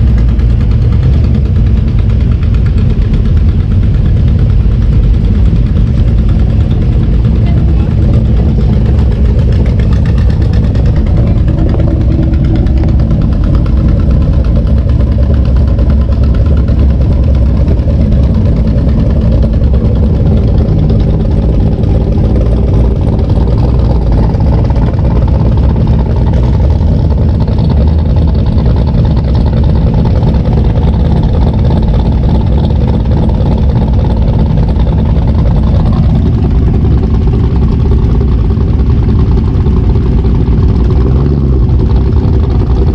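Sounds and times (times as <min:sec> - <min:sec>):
vehicle engine idling: 0:00.0 - 0:42.9.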